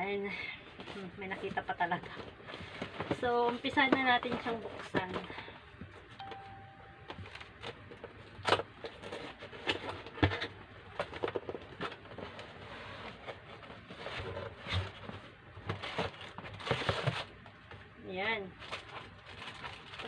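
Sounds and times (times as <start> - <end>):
packaging rustling and scraping: 0.7 - 6.5, 7.2 - 20.0.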